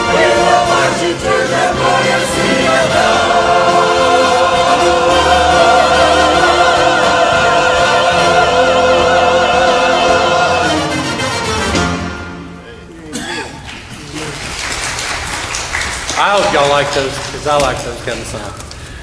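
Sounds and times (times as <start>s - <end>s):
church choir singing: 0.0s - 12.6s.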